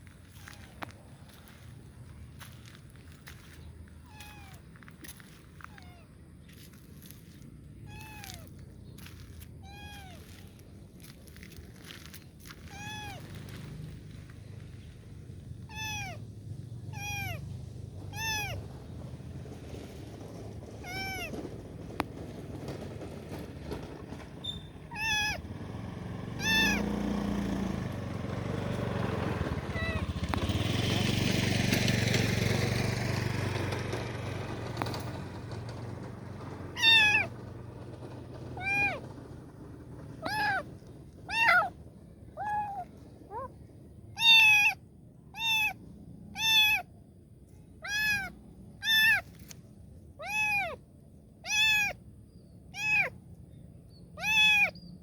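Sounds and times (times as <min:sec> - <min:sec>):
kitten meowing: 0:04.0 - 0:04.7, 0:05.6 - 0:06.1, 0:07.8 - 0:08.5, 0:09.6 - 0:10.5, 0:12.5 - 0:13.4, 0:15.6 - 0:16.2, 0:16.9 - 0:17.5, 0:18.1 - 0:18.6, 0:20.8 - 0:21.3, 0:24.4 - 0:25.5, 0:26.4 - 0:27.0, 0:29.6 - 0:30.2, 0:36.7 - 0:37.4, 0:38.5 - 0:39.1, 0:40.2 - 0:46.9, 0:47.8 - 0:49.4, 0:50.2 - 0:50.8, 0:51.4 - 0:52.0, 0:52.7 - 0:53.2, 0:54.2 - 0:54.8.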